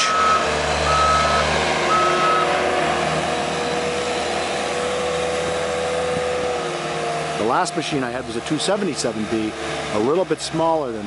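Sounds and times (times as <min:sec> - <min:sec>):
diesel engine running: 0:00.0 - 0:11.0
backup alarm beeping: 0:00.1 - 0:02.5.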